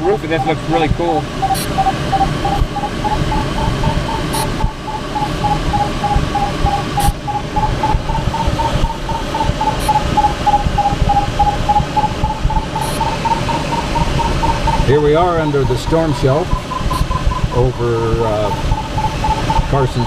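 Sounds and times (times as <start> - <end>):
sharp ticks: 0.0 - 20.0
variometer beeping: 0.0 - 20.0.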